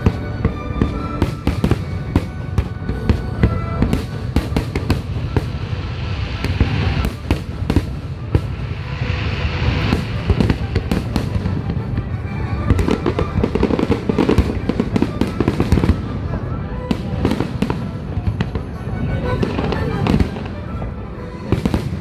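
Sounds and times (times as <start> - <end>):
fireworks booms and crackling: 0.0 - 22.0
low rumble: 2.0 - 13.6.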